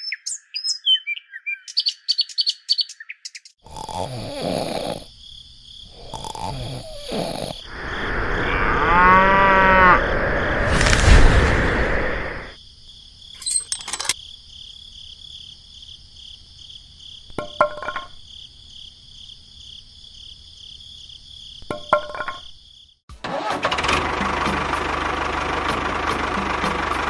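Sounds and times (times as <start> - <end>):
small engine starting and running: 23.1 - 27.0.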